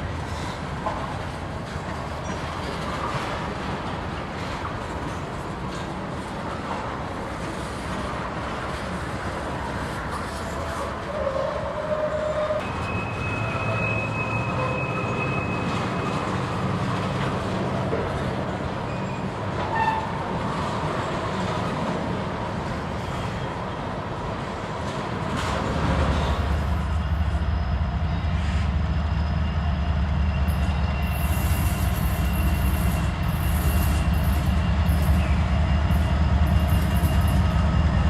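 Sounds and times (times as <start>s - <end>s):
freight train rumbling by: 0.0s - 38.0s
high thin squeal: 26.6s - 38.0s.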